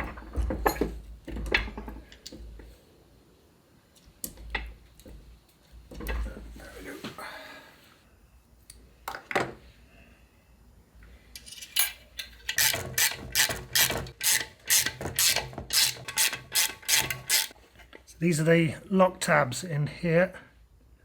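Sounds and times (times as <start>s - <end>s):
ratchet wrench clicking: 12.5s - 17.6s.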